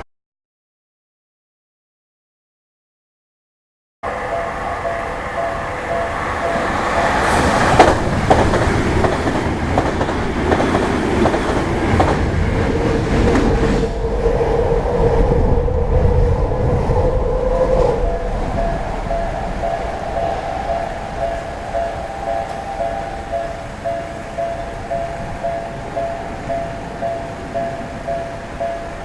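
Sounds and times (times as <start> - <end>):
ringing tones: 4.0 - 8.4, 18.0 - 29.0
train wheels clacking over rail joints: 5.9 - 13.7.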